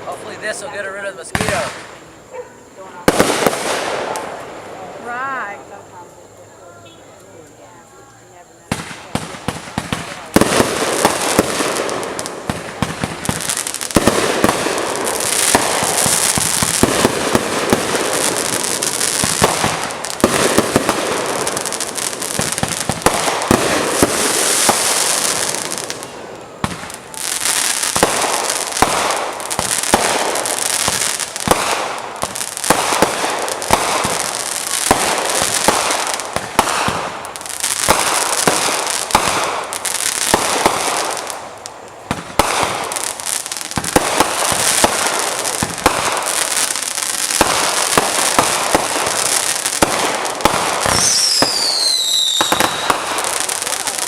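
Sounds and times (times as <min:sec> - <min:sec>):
fireworks crackling and popping: 0:00.0 - 0:54.0.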